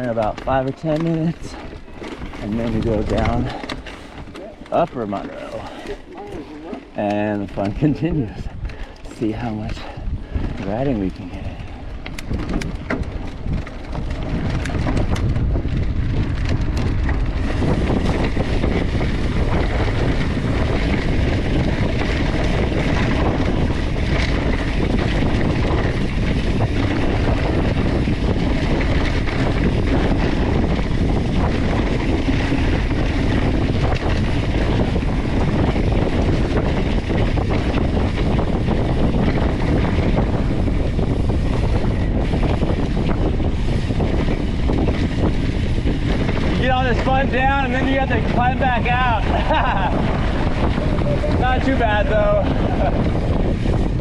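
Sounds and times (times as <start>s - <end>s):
clicks and rattles: 0.0s - 8.0s, 10.4s - 19.1s
bike tyres rolling on dirt: 0.0s - 54.0s
wind buffeting microphone: 0.0s - 54.0s.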